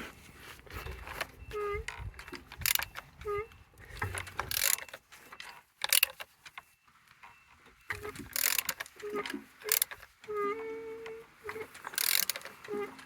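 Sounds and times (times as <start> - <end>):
engine squeaking: 0.0 - 13.0
metallic clanks of wrench: 4.0 - 6.2, 7.9 - 8.9, 12.0 - 12.5.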